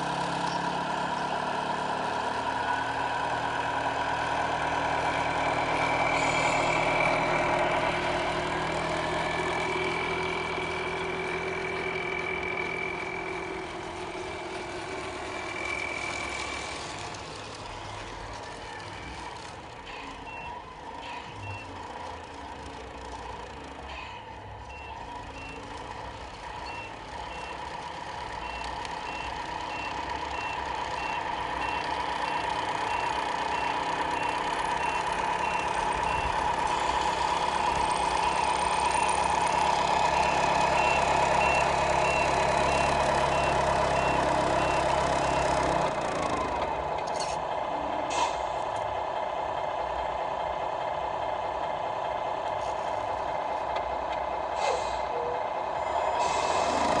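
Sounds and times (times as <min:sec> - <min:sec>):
electronic diesel engine sound: 0:00.0 - 0:57.0
reversing beeper: 0:05.0 - 0:17.0, 0:28.4 - 0:46.0, 0:54.8 - 0:56.9.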